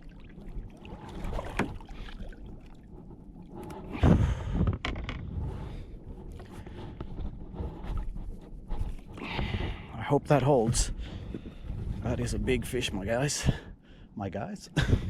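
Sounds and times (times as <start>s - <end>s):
water splashing against kayak: 0.0s - 9.9s.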